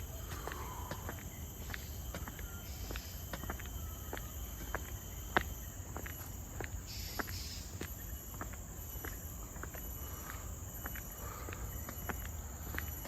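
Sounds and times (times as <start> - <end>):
faint bird call: 0.0 - 4.9
footsteps on a forest trail: 0.0 - 13.0
insect chorus: 0.0 - 13.0.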